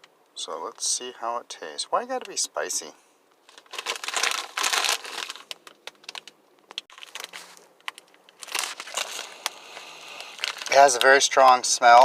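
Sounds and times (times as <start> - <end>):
plastic snack bag crinkling: 3.4 - 12.0.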